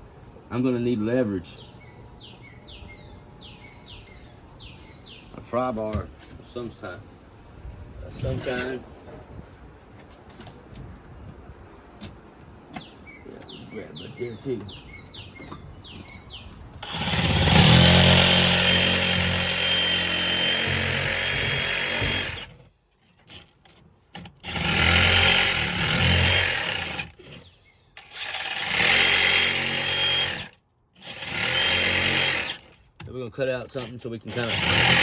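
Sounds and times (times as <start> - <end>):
reciprocating saw cutting insulation: 16.8 - 32.8, 33.8 - 35.0.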